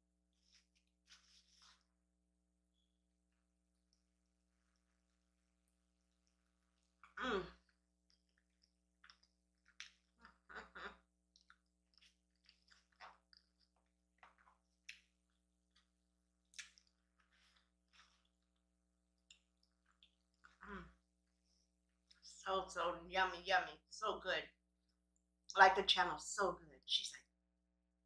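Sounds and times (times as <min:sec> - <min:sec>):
chewing with wet mouth smacks: 0:06.0 - 0:10.6, 0:11.2 - 0:20.6.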